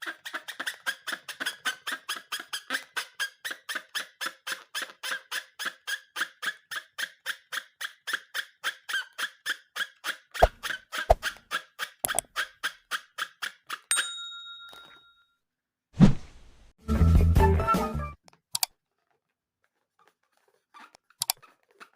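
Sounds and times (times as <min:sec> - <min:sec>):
rubbery squeaks: 0:00.0 - 0:13.9, 0:18.8 - 0:21.9
short ringing chime: 0:13.9 - 0:15.2.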